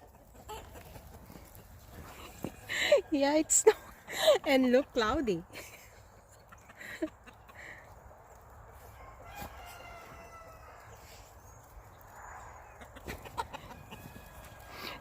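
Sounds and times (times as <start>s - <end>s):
rooster crowing: 8.8s - 11.0s, 13.6s - 15.0s.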